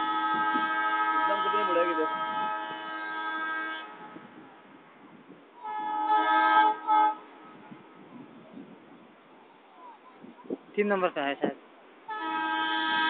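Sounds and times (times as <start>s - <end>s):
train horn blasts: 0.0s - 4.6s, 5.6s - 8.1s, 12.1s - 13.0s.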